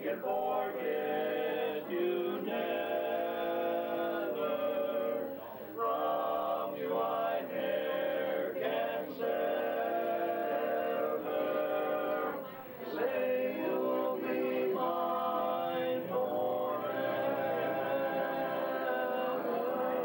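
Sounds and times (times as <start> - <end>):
vocal quartet singing a cappella: 0.0 - 20.0.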